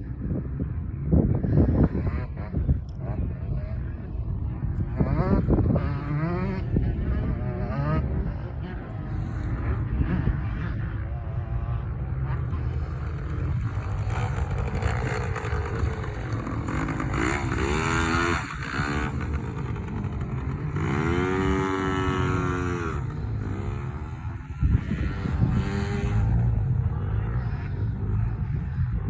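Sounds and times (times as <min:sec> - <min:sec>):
dirt bike engine revving: 0:12.0 - 0:28.4.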